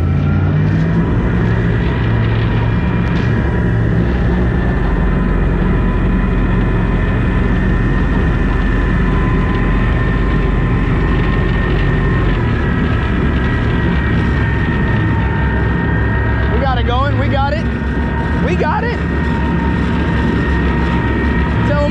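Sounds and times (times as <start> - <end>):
boat engine humming: 0.0 - 21.9.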